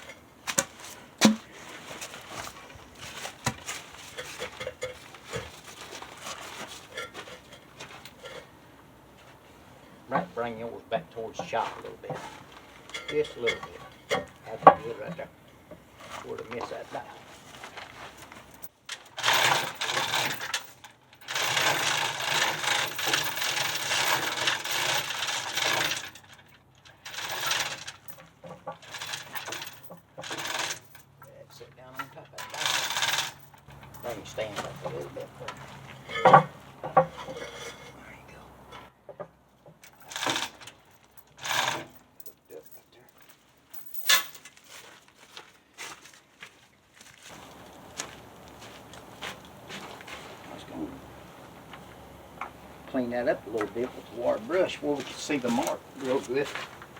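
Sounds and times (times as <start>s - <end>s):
metal rattling and scraping: 0.0s - 46.1s, 47.2s - 56.9s
wood and metal parts clattering: 0.0s - 56.9s
sharp knocks: 0.5s - 1.6s
faint steady hum: 30.8s - 44.3s, 47.3s - 56.9s.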